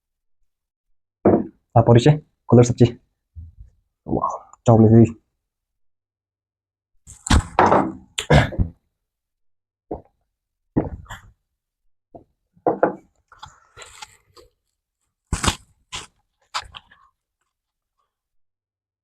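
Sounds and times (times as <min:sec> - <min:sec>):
crunching bites: 0:15.3 - 0:17.0.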